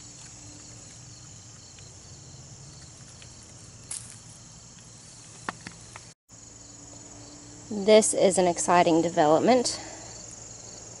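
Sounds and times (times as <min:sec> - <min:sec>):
rustle: 0:00.0 - 0:06.6
insects chorus: 0:00.0 - 0:11.0.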